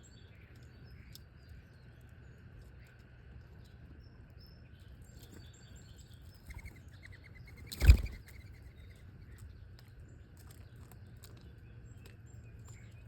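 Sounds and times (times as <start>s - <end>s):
small songbirds chirping: 0.0s - 13.0s
bird wingbeats flurry: 7.5s - 8.5s.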